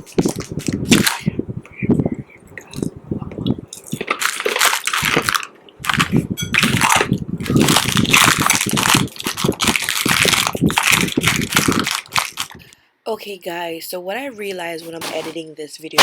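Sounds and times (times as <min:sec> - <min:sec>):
hard candy crunching: 0:00.0 - 0:01.3, 0:02.5 - 0:12.8.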